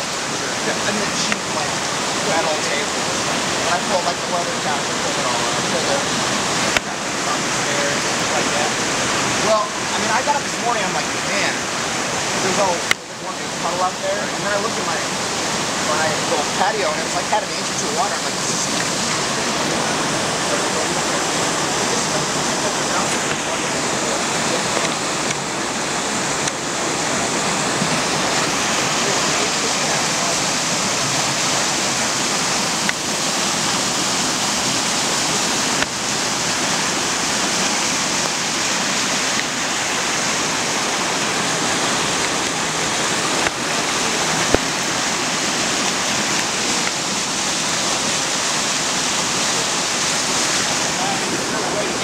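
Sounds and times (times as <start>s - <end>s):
floodwater rushing: 0.0s - 52.0s.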